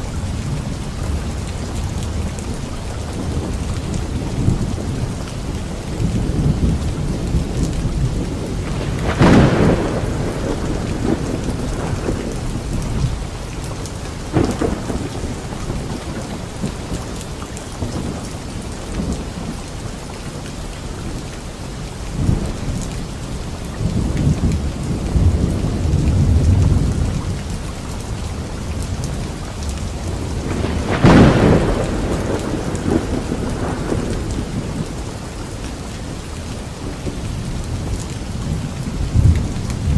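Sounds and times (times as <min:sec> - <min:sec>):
thunder rumbling: 0:00.0 - 0:19.6, 0:23.8 - 0:39.9
steady rain: 0:00.0 - 0:39.9
sharp thunderclaps: 0:06.0 - 0:17.2, 0:29.9 - 0:35.2.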